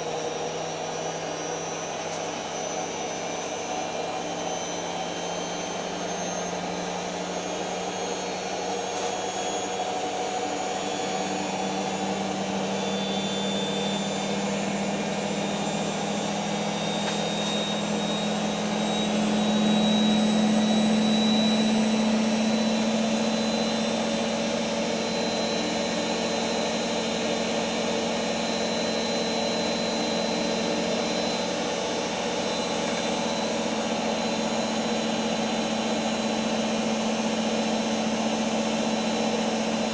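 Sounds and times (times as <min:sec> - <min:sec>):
washing machine motor whine: 0:00.0 - 0:39.9.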